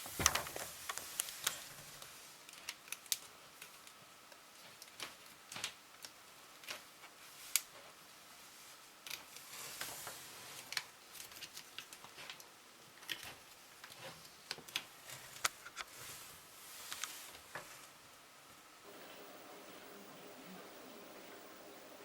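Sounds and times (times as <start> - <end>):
rustling: 13.0 - 18.0.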